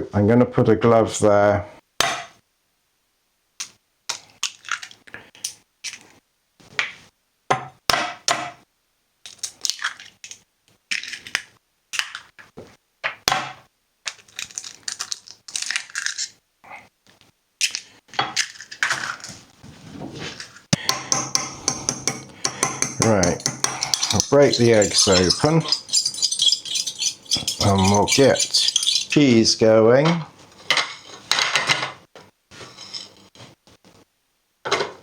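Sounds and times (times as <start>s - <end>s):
utensils and cookware clinking: 20.4s - 29.4s, 30.6s - 32.0s.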